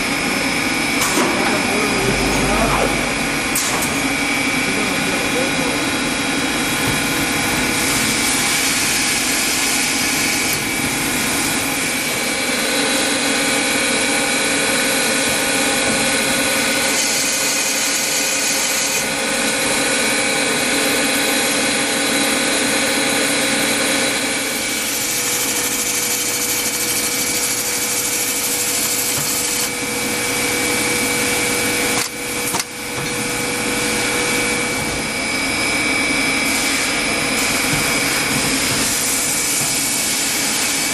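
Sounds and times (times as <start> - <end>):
machine tool running: 0.0 - 40.9
whining tones: 0.9 - 4.9.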